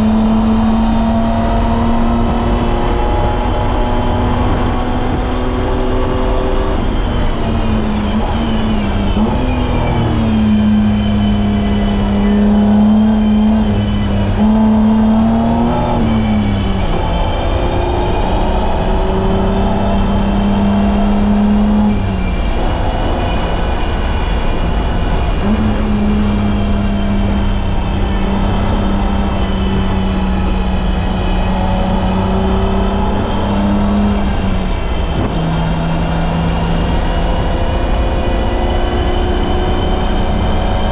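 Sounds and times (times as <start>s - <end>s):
car engine running hard: 0.0s - 40.9s
road and tyre rumble: 0.0s - 40.9s.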